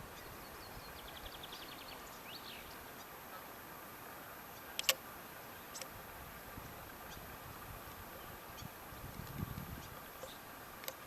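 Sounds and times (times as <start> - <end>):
small birds chirping: 0.0 - 3.6, 4.2 - 6.0, 6.6 - 11.0
sharp clicks: 4.8 - 5.0.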